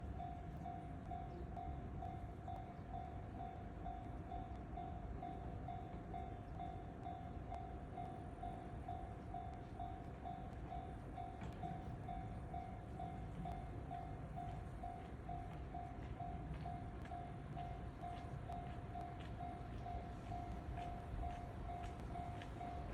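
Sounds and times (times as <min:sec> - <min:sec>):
freight train rumbling: 0:00.0 - 0:22.9
level crossing alarm ringing: 0:08.5 - 0:22.9.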